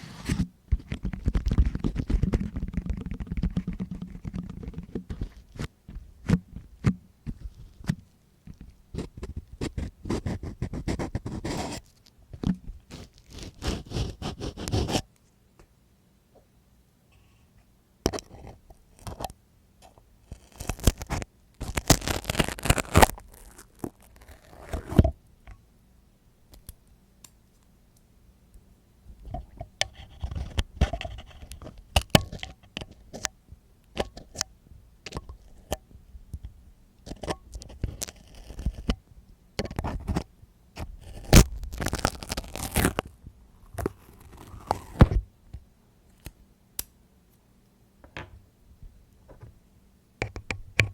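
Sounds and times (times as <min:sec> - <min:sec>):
scraping and crackling on microphone: 0:00.0 - 0:15.0, 0:20.3 - 0:25.2, 0:29.2 - 0:33.2, 0:37.1 - 0:39.0, 0:39.7 - 0:45.3.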